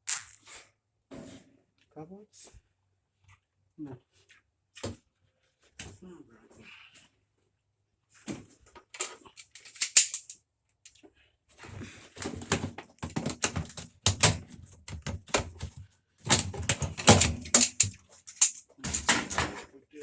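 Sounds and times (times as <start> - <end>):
hand tools clicking and clacking: 9.0 - 10.4, 12.4 - 19.7.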